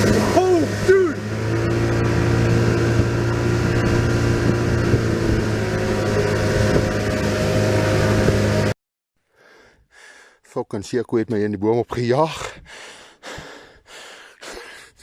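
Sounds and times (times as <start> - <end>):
engine humming steadily: 0.0 - 8.8.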